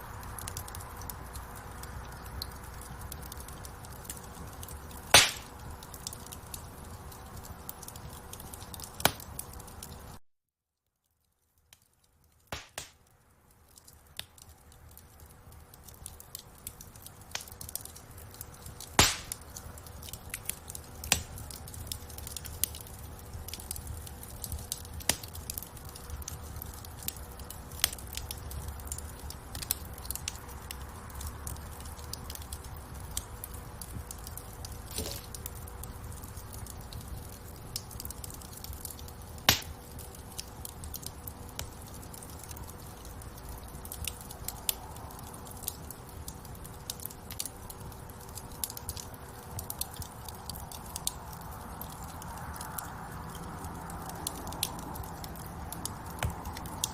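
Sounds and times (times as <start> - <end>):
low rumble of flames: 0.0 - 10.2, 11.3 - 56.9
wood fire crackling: 0.0 - 10.2, 11.0 - 56.9
loud pops from fire: 2.1 - 6.7, 7.8 - 10.0, 12.5 - 13.1, 15.7 - 30.3, 31.2 - 35.6, 36.6 - 42.7, 54.2 - 56.9.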